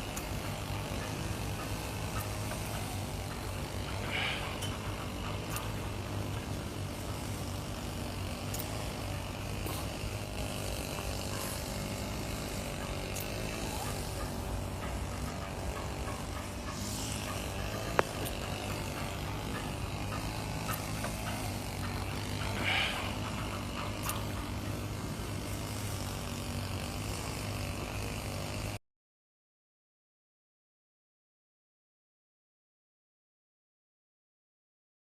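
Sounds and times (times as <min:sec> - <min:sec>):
truck engine humming: 0:00.0 - 0:28.7.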